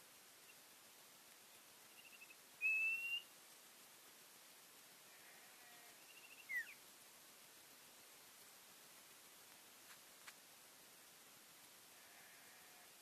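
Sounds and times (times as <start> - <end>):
bird singing whistles: 2.0 - 3.3, 6.1 - 6.8.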